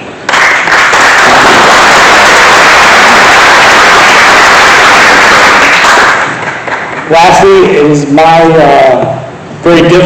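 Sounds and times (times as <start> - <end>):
audience applauding: 0.3 - 7.2.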